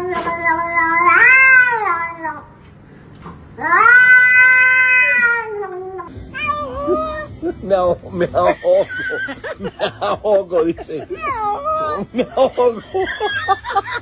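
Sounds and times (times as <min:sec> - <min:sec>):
cat yowling: 0:00.0 - 0:02.4, 0:03.6 - 0:07.3, 0:11.1 - 0:12.1.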